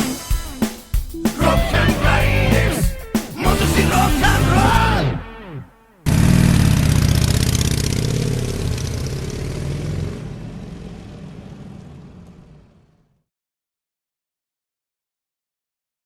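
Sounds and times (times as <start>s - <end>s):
rock song: 0.0s - 5.7s
motorcycle engines revving: 6.0s - 13.0s.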